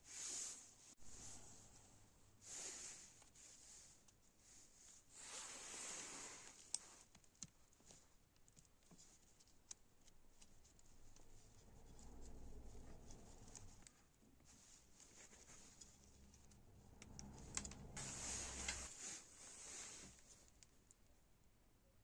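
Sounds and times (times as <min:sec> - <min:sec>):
scraping rustle: 0:10.2 - 0:20.7
low hum: 0:10.8 - 0:14.7, 0:15.5 - 0:19.0.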